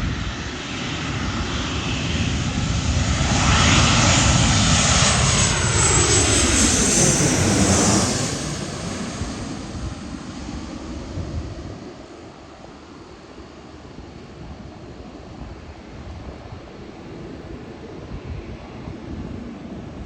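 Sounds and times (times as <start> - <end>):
jet airliner passing overhead: 0.0 - 20.0.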